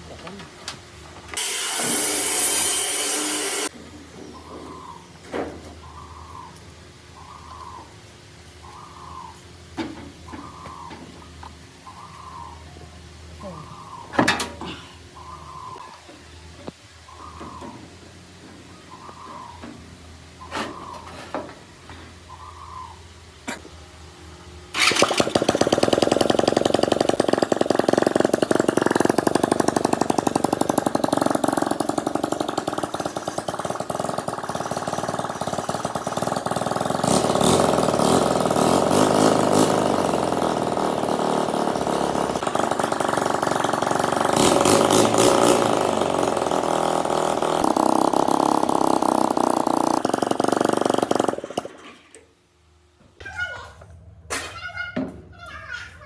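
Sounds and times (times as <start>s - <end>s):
small engine running: 1.3s - 3.7s, 24.7s - 52.2s.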